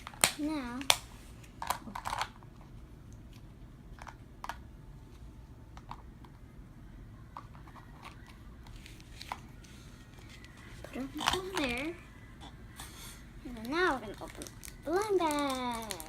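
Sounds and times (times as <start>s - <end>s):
low room hum: 0.0s - 16.0s
plastic toys clicking and rustling: 1.6s - 2.4s, 10.2s - 12.0s, 13.5s - 16.0s.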